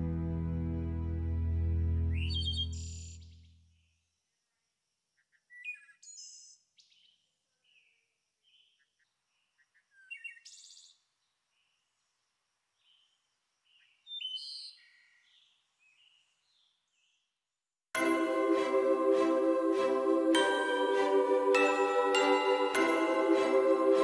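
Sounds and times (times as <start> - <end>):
small birds chirping and singing: 2.2 - 3.5, 5.2 - 12.1, 12.8 - 17.3.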